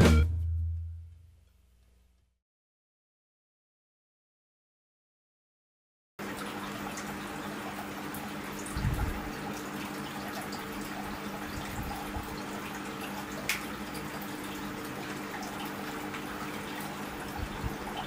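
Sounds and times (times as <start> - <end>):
water pump humming: 6.2 - 18.0
water trickling and splashing: 6.2 - 18.0.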